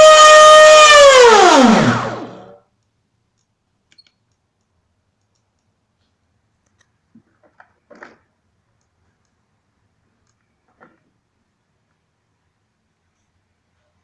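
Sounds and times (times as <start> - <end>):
electric motors winding down: 0.0 - 2.6
faint clicks: 2.7 - 7.7, 8.7 - 9.5, 10.1 - 10.7.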